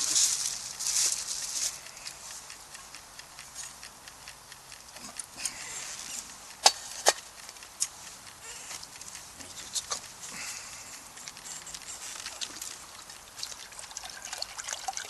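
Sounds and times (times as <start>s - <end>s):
campfire crackling: 4.5s - 15.0s.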